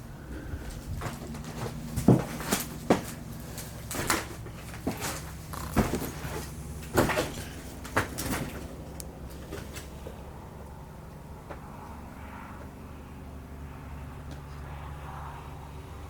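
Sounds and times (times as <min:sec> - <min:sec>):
knocks and clunks: 0:00.8 - 0:08.8.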